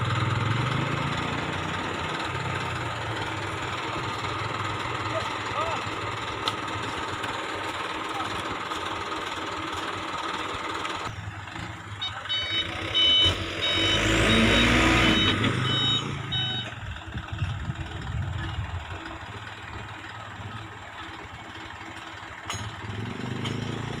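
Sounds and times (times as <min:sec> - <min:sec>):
truck passing on road: 0:00.0 - 0:24.0
electronic beeps: 0:12.0 - 0:16.7.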